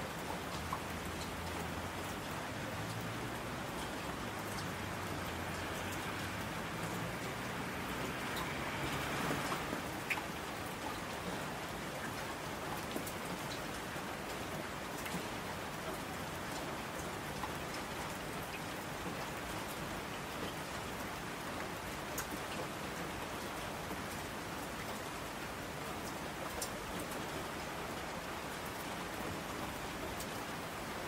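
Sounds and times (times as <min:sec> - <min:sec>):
steady rain patter: 0:00.0 - 0:31.0
sharp raindrop clicks: 0:08.0 - 0:11.0.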